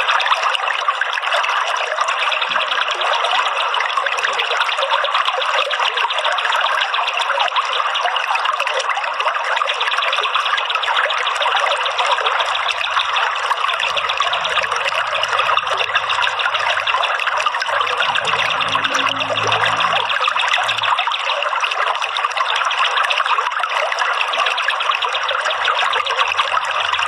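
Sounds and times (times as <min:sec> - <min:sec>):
running water trickling: 0:00.0 - 0:27.0
faint low hum: 0:12.4 - 0:21.2.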